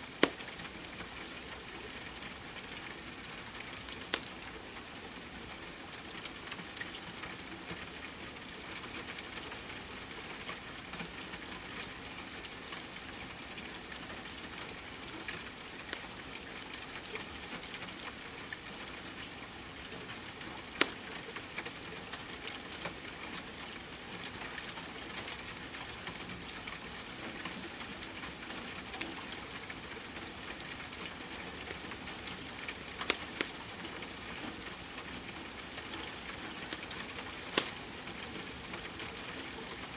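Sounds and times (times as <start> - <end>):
fireplace wood crackling: 0.0 - 0.8, 20.8 - 21.1, 32.6 - 33.7, 35.7 - 38.8
rain hiss: 0.0 - 39.9.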